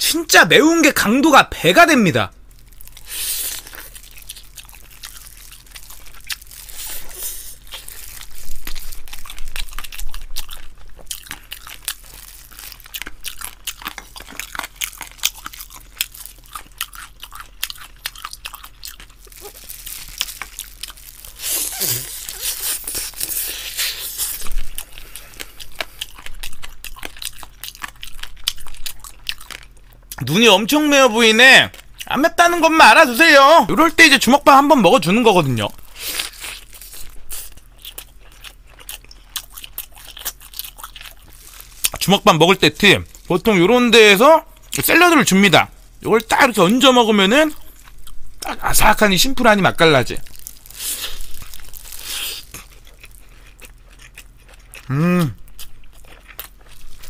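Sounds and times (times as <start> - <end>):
chewing and biting: 2.6 - 30.3, 35.7 - 43.6, 50.2 - 57.0.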